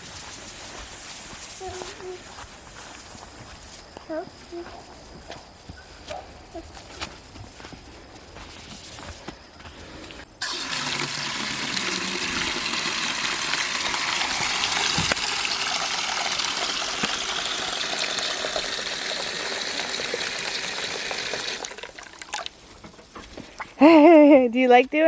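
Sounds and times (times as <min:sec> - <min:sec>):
garden hose water rushing: 0:00.0 - 0:03.3, 0:10.4 - 0:24.2.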